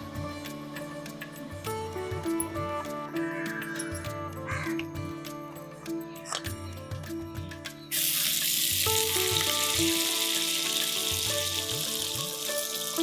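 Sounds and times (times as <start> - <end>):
background music: 0.0 - 13.0
food sizzling in hot oil: 7.9 - 13.0.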